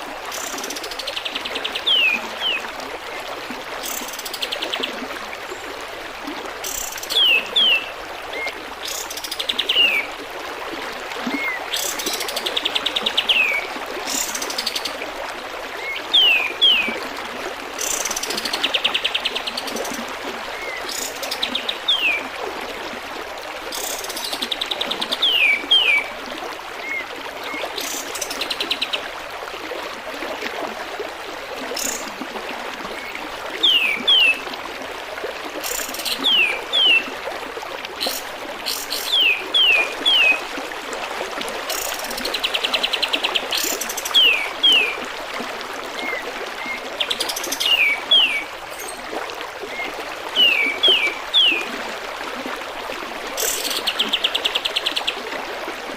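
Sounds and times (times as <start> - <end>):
running water trickling: 0.0 - 55.9
bird calling with whistles and trills: 35.6 - 37.1, 38.0 - 40.4, 49.7 - 51.7.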